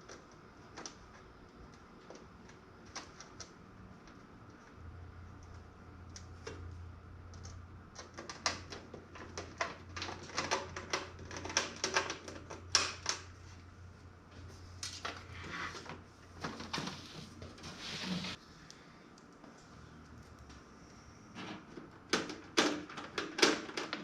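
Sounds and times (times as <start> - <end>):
small hard parts clicking: 7.3 - 13.3.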